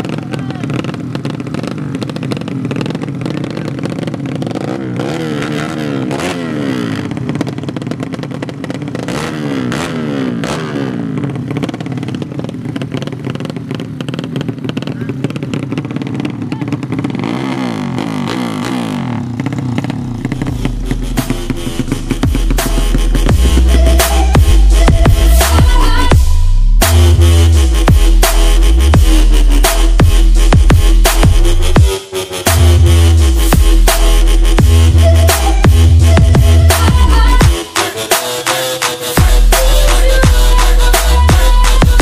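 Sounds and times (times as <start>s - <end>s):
voices: 0.0s - 1.0s, 14.8s - 15.4s, 16.2s - 16.9s, 20.3s - 27.3s, 34.9s - 42.0s
motorcycle engines revving: 0.0s - 42.0s.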